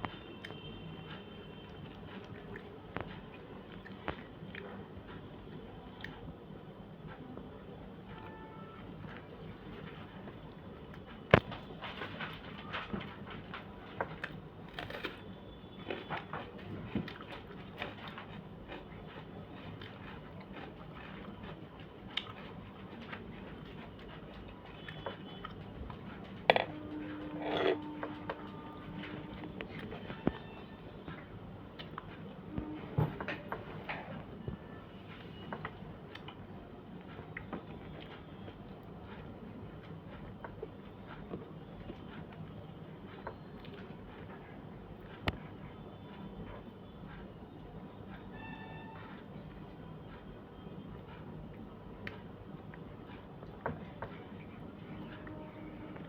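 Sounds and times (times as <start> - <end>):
low steady hum: 0.0 - 56.0
person chewing: 1.6 - 5.2, 13.9 - 15.2, 15.8 - 28.7.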